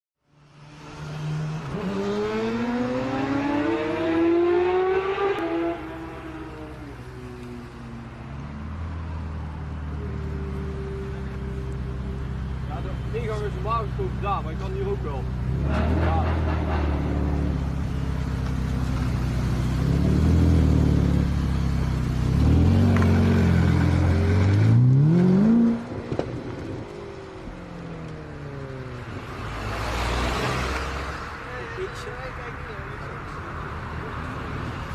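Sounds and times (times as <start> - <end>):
sports car accelerating: 0.4 - 31.3
quieter engine note: 9.8 - 15.4
sports car engine revving: 15.2 - 26.7.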